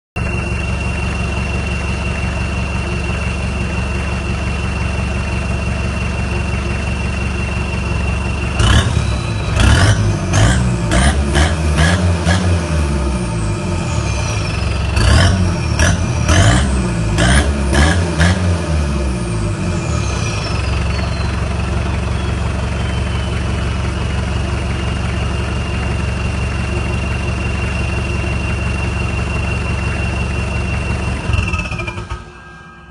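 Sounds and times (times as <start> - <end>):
diesel engine revving: 0.2 - 32.4
turbo whistle: 19.8 - 23.8.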